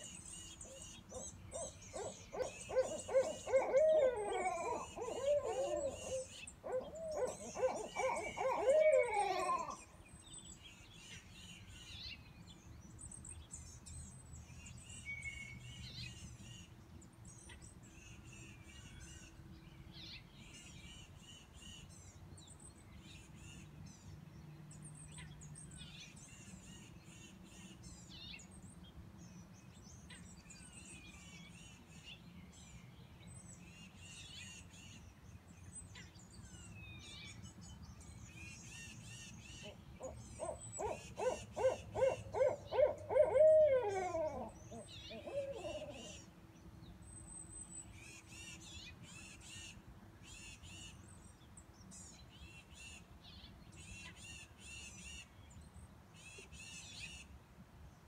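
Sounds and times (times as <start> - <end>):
owl hooting: 0.6 - 9.8, 39.6 - 46.2.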